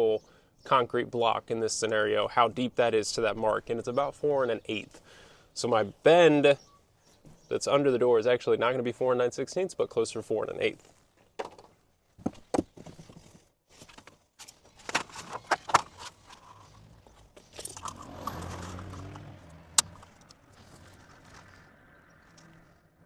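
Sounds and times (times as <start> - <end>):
scraping rustle: 19.9 - 22.7.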